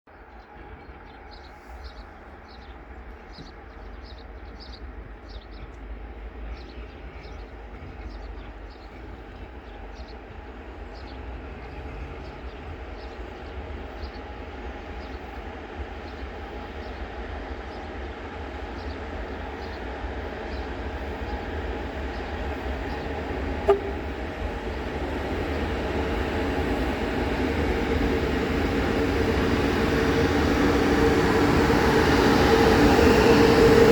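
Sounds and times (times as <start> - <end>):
freight train rumble: 0.1 - 33.9
short high chirps: 23.7 - 24.1.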